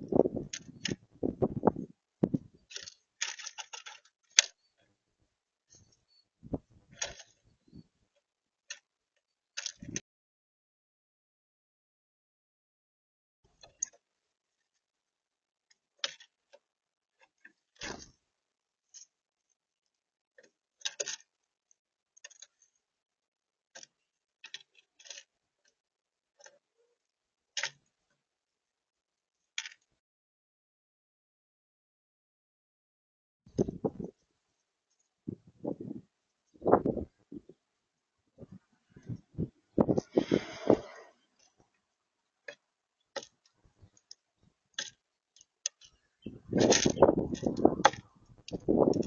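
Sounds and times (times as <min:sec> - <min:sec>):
birds pecking at a feeder: 0:00.0 - 0:05.0, 0:05.7 - 0:10.0, 0:15.7 - 0:22.9, 0:23.6 - 0:28.2, 0:38.4 - 0:49.0.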